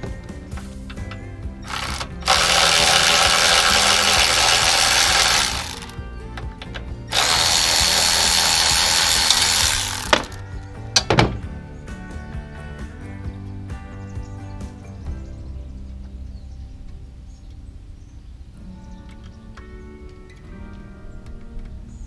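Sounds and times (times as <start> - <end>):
power tool running: 0.0 - 10.5
background music: 0.0 - 22.0.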